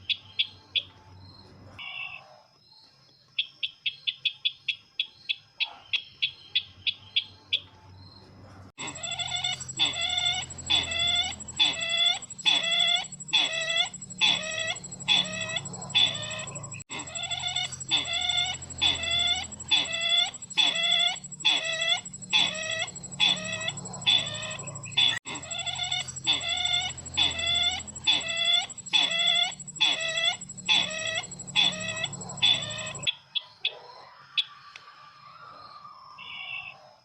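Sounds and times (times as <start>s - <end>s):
recorded bird call: 0.0s - 8.0s, 8.8s - 37.0s
faint high whine: 8.8s - 33.1s.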